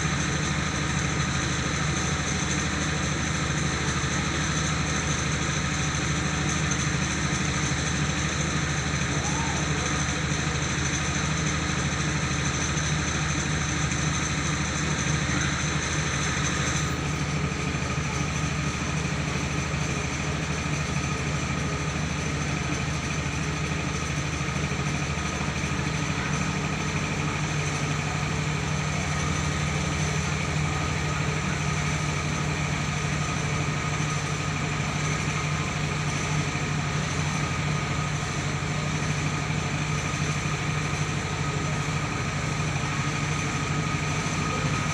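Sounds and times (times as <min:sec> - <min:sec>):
rice milling machine engine drone: 0:00.0 - 0:44.9.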